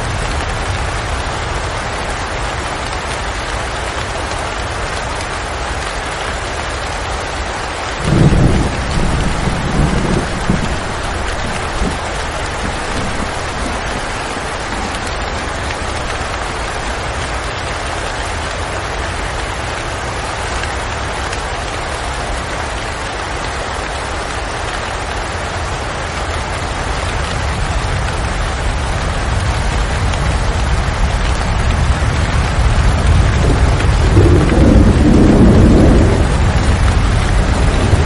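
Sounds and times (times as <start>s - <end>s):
steady rain falling: 0.0s - 38.0s
low rumble: 32.9s - 38.0s.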